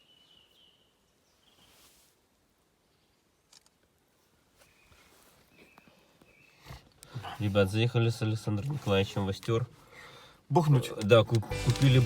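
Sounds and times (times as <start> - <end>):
small click: 3.5 - 3.8.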